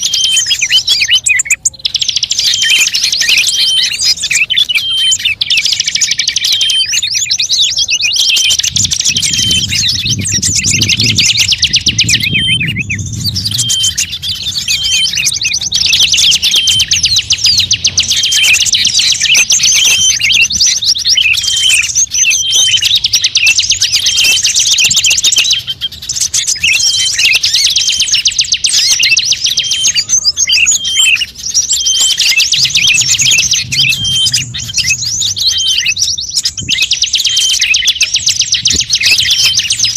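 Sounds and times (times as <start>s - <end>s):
songbirds chirping and trilling: 0.0s - 39.9s
low rumble: 8.7s - 18.2s, 32.5s - 36.7s.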